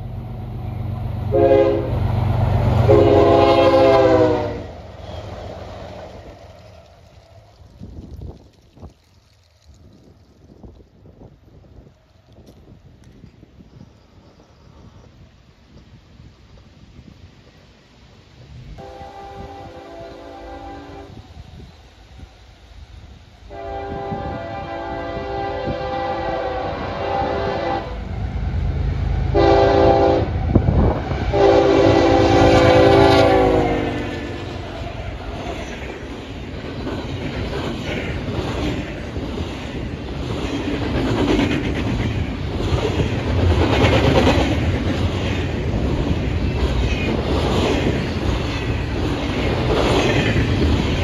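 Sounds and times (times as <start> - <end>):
train horn blasts: 1.3 - 2.0, 2.8 - 5.3, 18.8 - 21.3, 23.5 - 28.2, 29.1 - 34.8
rail cars clickety-clack: 23.1 - 51.0.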